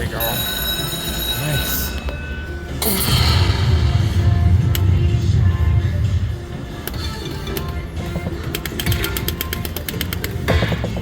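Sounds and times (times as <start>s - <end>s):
slot machine music: 0.0s - 11.0s
heavy low rumble: 3.0s - 8.1s.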